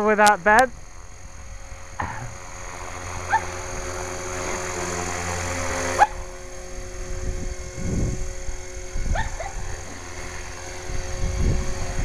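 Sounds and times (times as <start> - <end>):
model helicopter motor whine: 0.0 - 12.0
wind buffeting microphone: 6.2 - 12.0.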